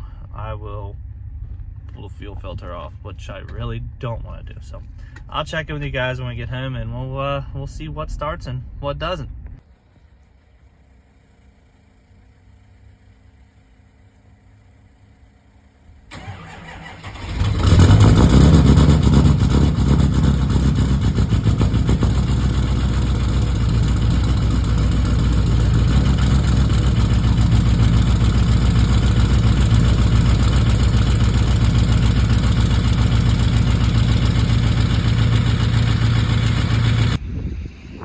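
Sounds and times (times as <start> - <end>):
diesel engine cranking and idling: 10.2 - 37.2.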